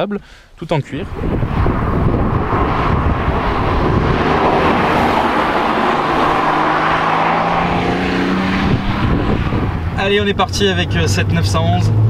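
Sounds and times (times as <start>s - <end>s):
low engine note: 1.0s - 10.0s
car driving past: 1.0s - 10.1s.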